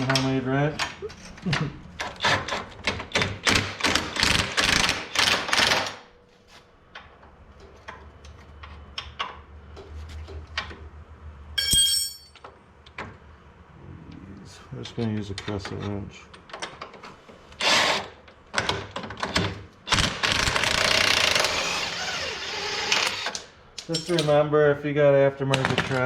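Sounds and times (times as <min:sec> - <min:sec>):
wrench striking metal clang: 0:11.6 - 0:12.5.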